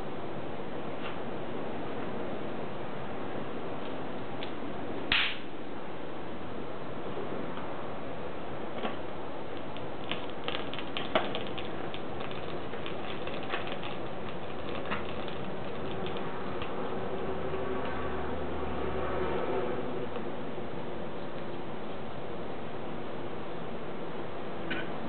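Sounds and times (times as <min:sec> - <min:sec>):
steady hiss: 0:00.0 - 0:17.5
wood fire crackling: 0:08.9 - 0:18.0.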